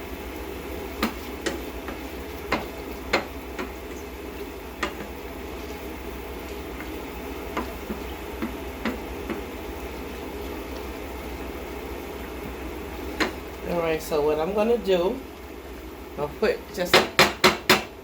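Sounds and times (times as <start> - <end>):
food sizzling in frying pan: 0.0 - 18.0
utensil knocking against pan: 1.0 - 3.8, 16.9 - 17.9.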